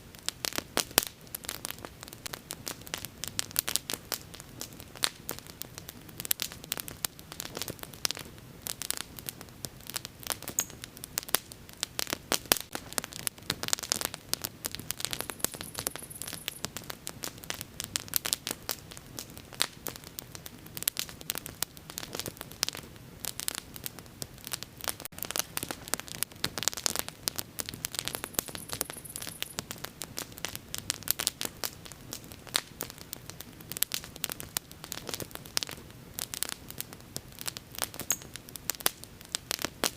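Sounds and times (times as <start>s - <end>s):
bonfire crackling: 0.0s - 39.9s.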